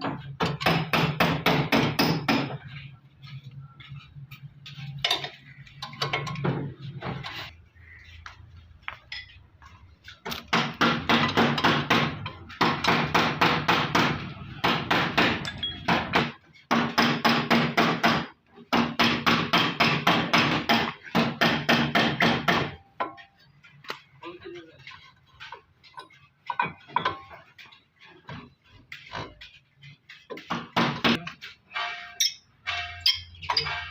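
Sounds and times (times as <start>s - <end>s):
hammering on metal: 0.0s - 2.7s, 10.3s - 23.4s, 30.3s - 33.9s.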